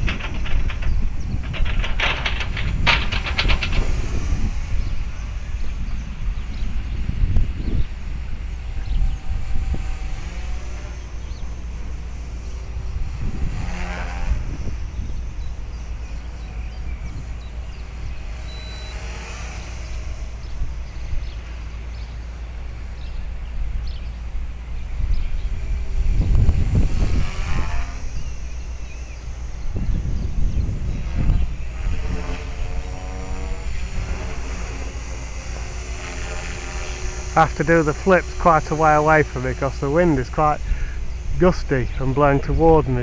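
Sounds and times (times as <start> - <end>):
wind buffeting microphone: 0.0 - 10.1, 25.0 - 28.7
rc helicopter whine: 0.0 - 43.0.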